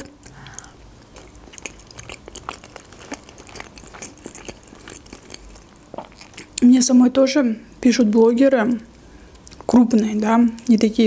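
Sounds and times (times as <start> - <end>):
person chewing with mouth clicks: 0.0 - 6.6.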